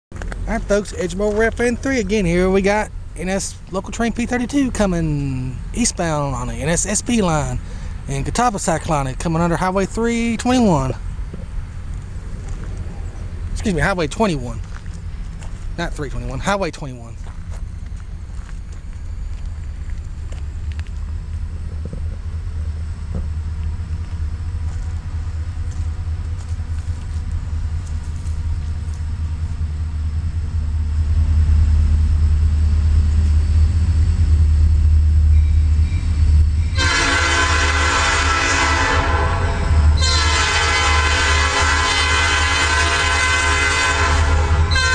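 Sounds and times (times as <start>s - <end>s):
diesel locomotive engine rumble: 0.1s - 44.9s
locomotive air horn: 36.7s - 44.9s.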